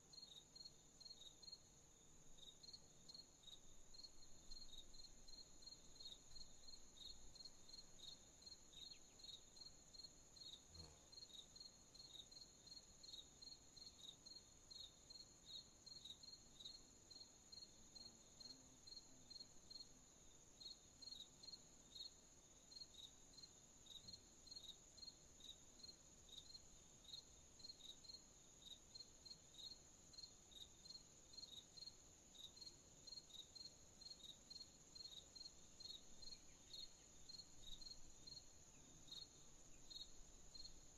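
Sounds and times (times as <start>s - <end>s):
crickets chirping: 0.0s - 40.9s
high-pitched insect trill: 22.7s - 40.8s.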